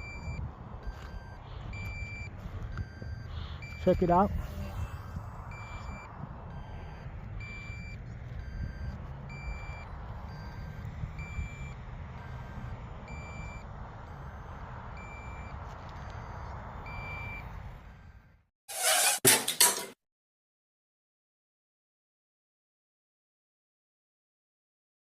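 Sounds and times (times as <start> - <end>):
two-tone alarm beeping: 0.0 - 18.2
wind rumble on microphone: 0.0 - 18.3.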